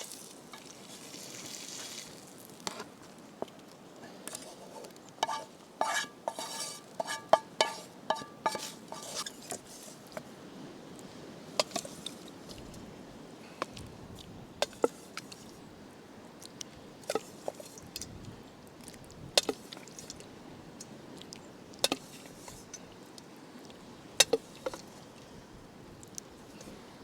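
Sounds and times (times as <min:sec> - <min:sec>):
steady background hiss: 0:00.0 - 0:27.0
utensils clicking on metal cookware: 0:05.2 - 0:09.2.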